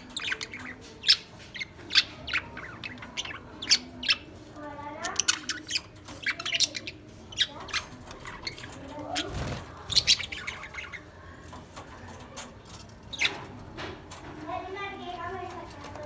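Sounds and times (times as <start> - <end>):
lovebirds chirping and squawking: 0.0 - 16.0.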